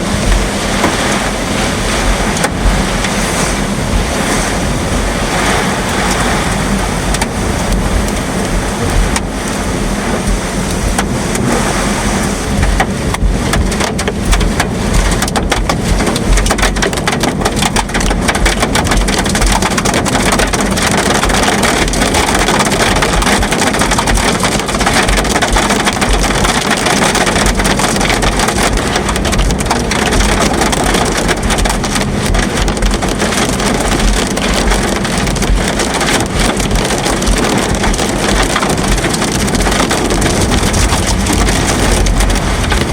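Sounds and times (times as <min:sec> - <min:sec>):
heavy rain hissing: 0:00.0 - 0:42.9
low rumble of wind: 0:00.0 - 0:42.9.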